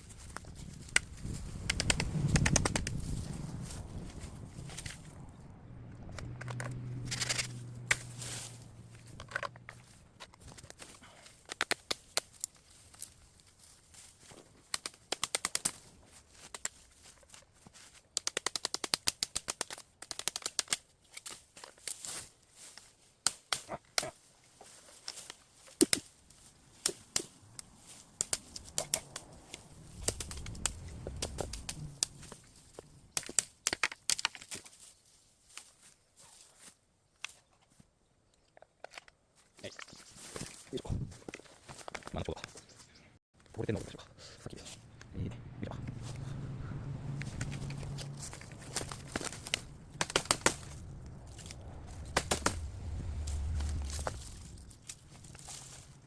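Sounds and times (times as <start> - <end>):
bamboo cracking and breaking: 0.0 - 37.8, 38.6 - 42.6, 47.0 - 56.0
dull low rumble: 0.1 - 10.2, 28.4 - 33.2, 44.8 - 56.0.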